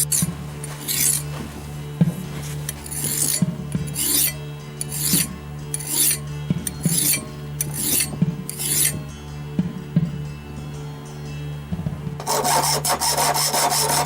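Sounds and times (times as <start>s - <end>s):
file rasping across steel: 0.0s - 1.3s, 2.7s - 6.2s, 6.9s - 9.0s, 12.2s - 14.0s.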